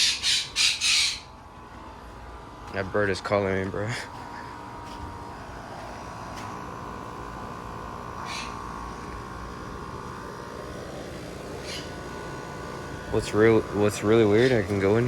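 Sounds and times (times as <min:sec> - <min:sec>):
bird calls: 0:00.0 - 0:01.3, 0:08.2 - 0:08.6, 0:11.6 - 0:12.0
air conditioner unit humming: 0:00.0 - 0:15.0.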